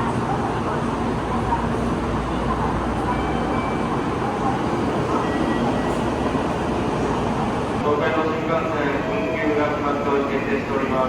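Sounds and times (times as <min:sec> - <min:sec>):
train rumble: 0:00.0 - 0:07.8.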